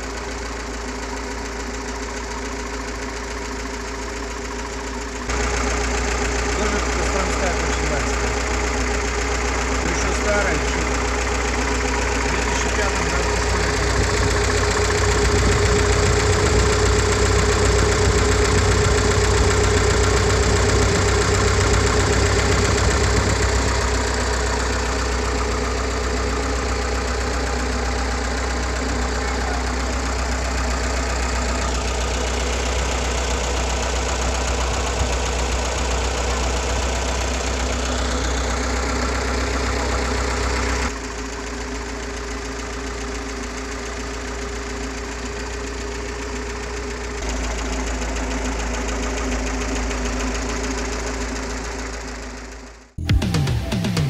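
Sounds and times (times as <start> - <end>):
petrol engine idling: 0.0 - 54.0.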